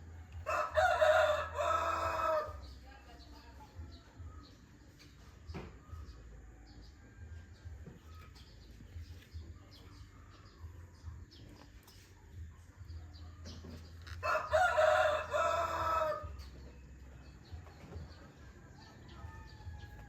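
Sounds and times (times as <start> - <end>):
rooster crowing: 0.4 - 2.6, 14.2 - 16.4.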